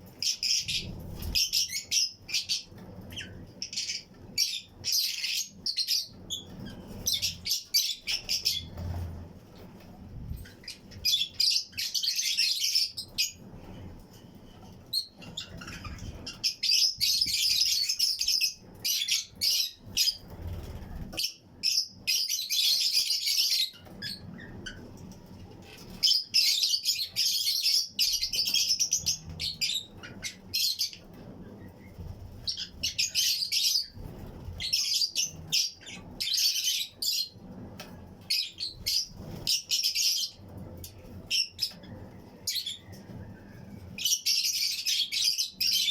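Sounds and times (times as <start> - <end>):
lovebirds chirping shrilly: 0.2 - 9.0.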